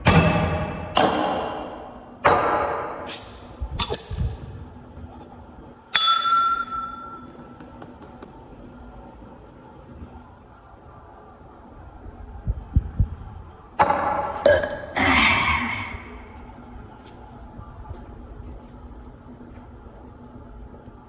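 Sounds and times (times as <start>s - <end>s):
ringing clink: 6.0s - 7.3s.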